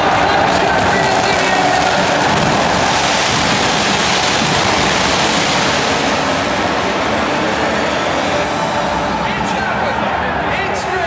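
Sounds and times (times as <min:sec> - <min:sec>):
spark fountains hissing: 0:01.2 - 0:06.7.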